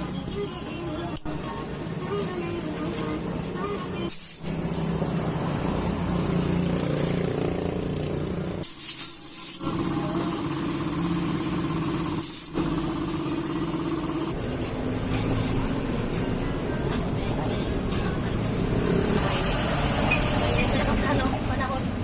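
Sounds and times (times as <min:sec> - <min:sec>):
motorcycle engine running: 0:04.5 - 0:08.6, 0:09.6 - 0:22.0
short hissing bursts: 0:08.6 - 0:09.7, 0:12.2 - 0:12.6.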